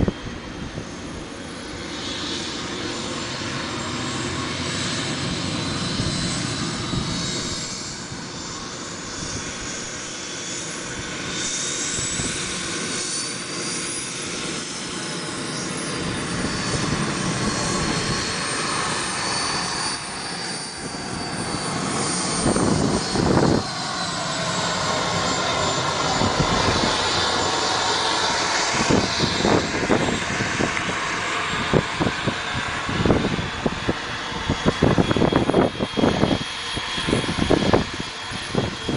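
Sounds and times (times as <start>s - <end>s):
model jet engine whining: 0.0s - 38.9s.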